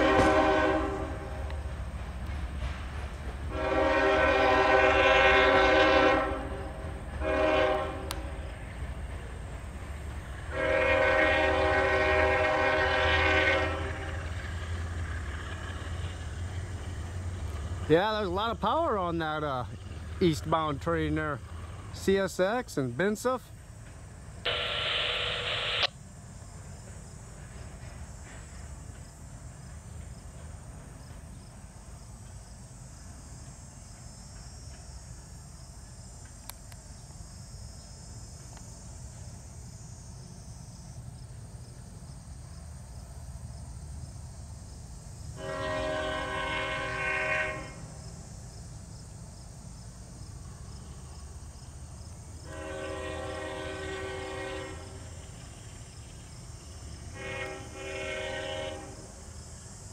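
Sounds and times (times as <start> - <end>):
diesel locomotive horn: 0.0 - 1.6, 3.5 - 8.5, 10.5 - 14.4, 24.5 - 25.9, 45.3 - 48.0, 52.4 - 55.2, 57.1 - 59.3.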